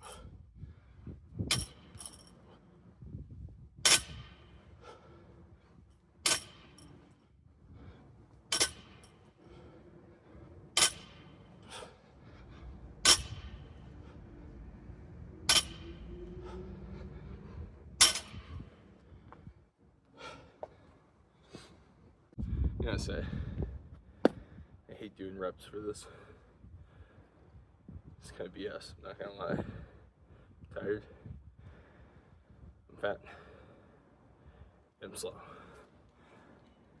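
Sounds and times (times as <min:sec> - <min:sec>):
barbell plates clanking on ground: 0:08.5 - 0:09.7, 0:10.8 - 0:11.9, 0:13.0 - 0:13.8, 0:15.5 - 0:16.1.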